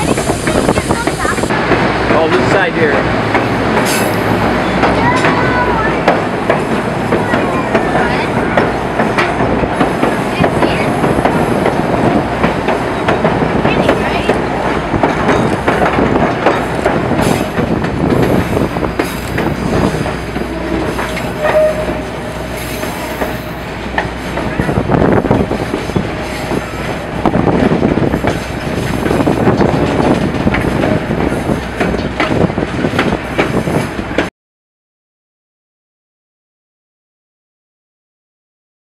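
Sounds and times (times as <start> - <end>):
train coaches rumbling: 0.0 - 34.3
wheels clattering on rails: 0.0 - 34.3
faint wheel squeal: 20.7 - 22.0.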